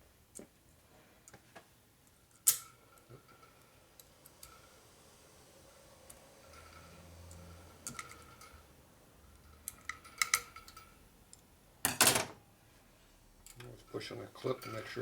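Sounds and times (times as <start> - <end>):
small metallic clicks: 9.4 - 11.5.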